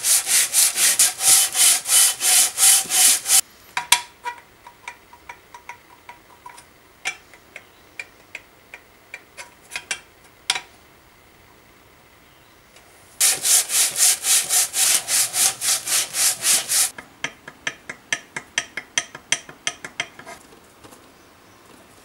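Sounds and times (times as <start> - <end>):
metal rasping on sandpaper: 0.0 - 3.4, 13.2 - 16.9.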